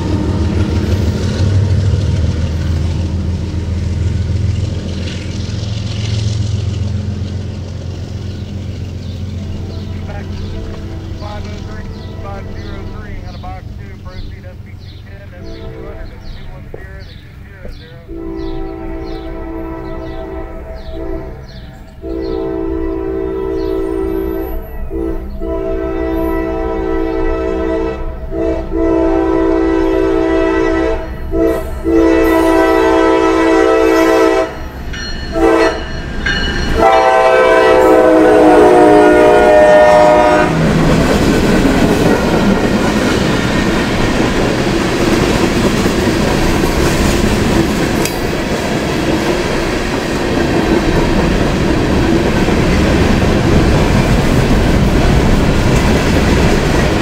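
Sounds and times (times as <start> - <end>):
wheels clacking over rail joints: 0.0 - 19.2, 40.0 - 57.0
train cars rumbling past: 0.0 - 57.0
locomotive air horn blasts: 9.6 - 13.5, 15.3 - 16.4, 17.7 - 34.7, 35.3 - 36.0, 36.8 - 40.7.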